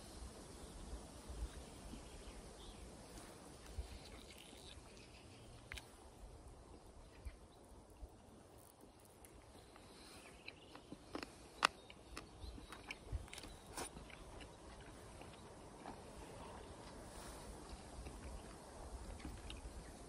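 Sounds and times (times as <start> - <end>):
mouth smacks and wet clicks: 3.6 - 6.2
person chewing food: 3.6 - 7.4, 8.0 - 19.7.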